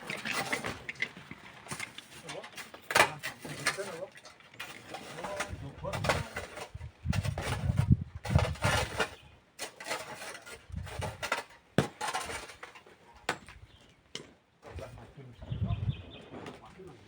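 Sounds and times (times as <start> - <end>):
hand tools scraping sand and stone: 0.0 - 1.1, 1.7 - 13.2.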